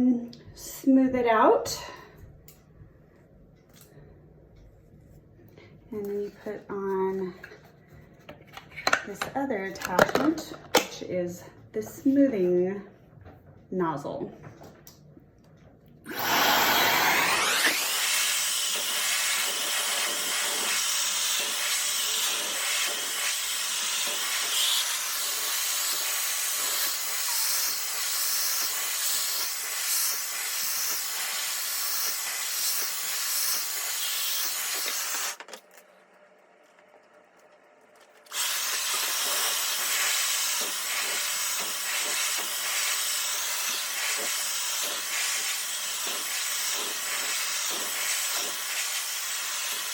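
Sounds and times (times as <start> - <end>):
hair dryer blowing air: 16.1 - 35.4, 38.3 - 49.9.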